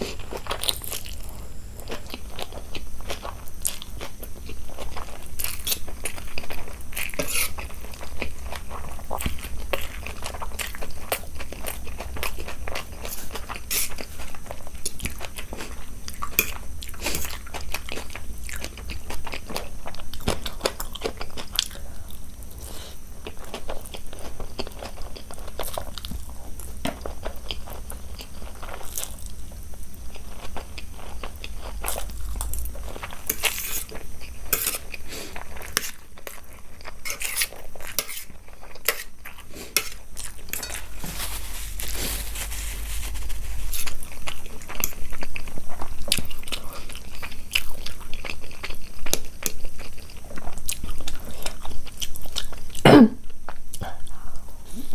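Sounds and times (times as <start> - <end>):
steady low hum: 0.0 - 54.9
person chewing and biting: 29.9 - 52.8.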